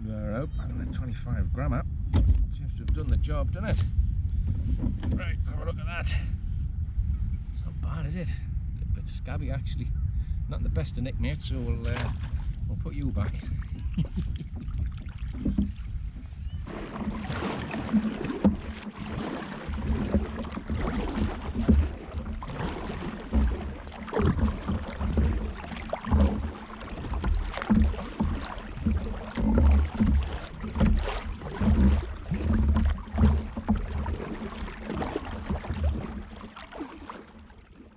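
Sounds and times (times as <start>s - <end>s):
low knocks on hull: 2.1s - 3.2s, 3.8s - 5.4s, 11.8s - 37.4s
water lapping against kayak hull: 4.0s - 5.6s, 11.7s - 37.9s.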